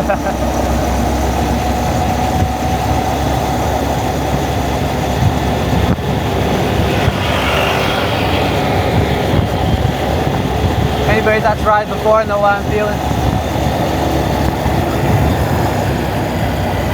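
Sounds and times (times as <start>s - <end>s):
motorcycle engine running: 0.0s - 16.9s
wind buffeting microphone: 0.0s - 16.9s.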